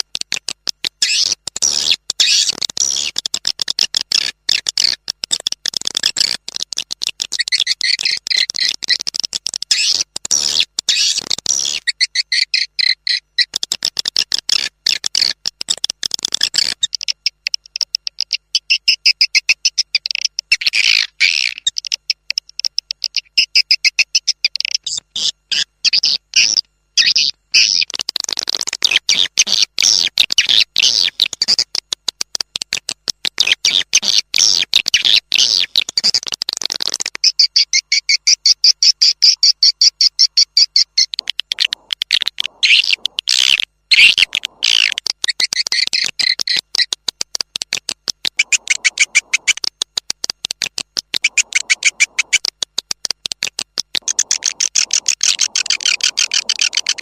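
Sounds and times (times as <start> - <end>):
swiftlets chattering twitter: 48.4 - 49.6, 51.2 - 52.5, 54.0 - 57.0.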